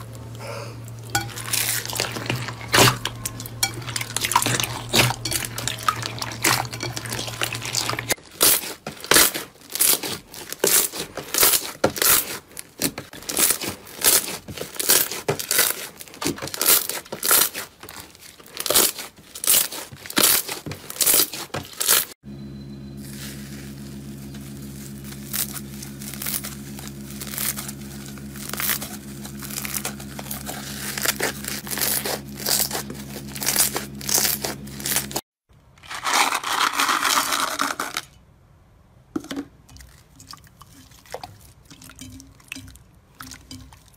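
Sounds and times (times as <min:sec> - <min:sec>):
steady low hum: 0:00.0 - 0:08.2, 0:22.2 - 0:35.2
slime crackling and popping: 0:24.6 - 0:35.2.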